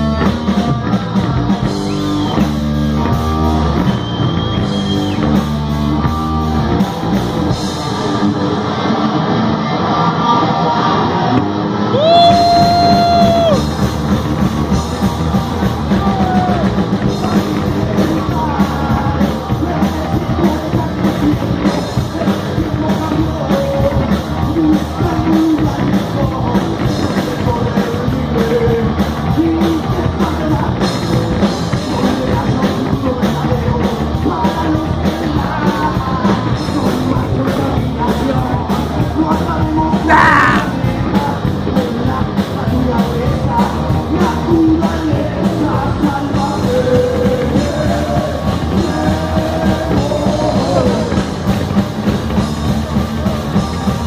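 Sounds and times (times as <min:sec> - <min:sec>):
drum kit: 0:00.0 - 0:09.2, 0:11.3 - 0:54.0
rock band playing live: 0:00.0 - 0:54.0
person singing: 0:39.2 - 0:51.4.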